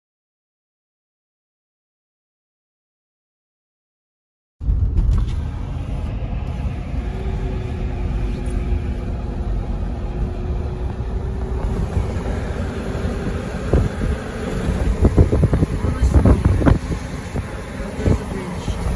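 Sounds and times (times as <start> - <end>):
car road rumble: 4.6 - 18.9
faint rising hum: 4.6 - 18.9.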